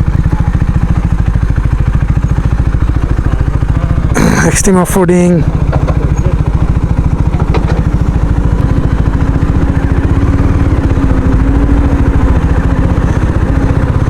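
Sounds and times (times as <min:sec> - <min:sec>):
motorcycle engine running: 0:00.0 - 0:14.0
clatters on rocky track: 0:05.6 - 0:06.4.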